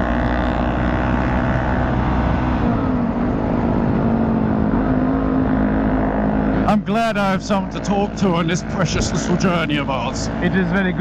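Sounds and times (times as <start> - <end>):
wind rumble on microphone: 0.0 - 6.7
motorcycle engine running: 0.0 - 11.0.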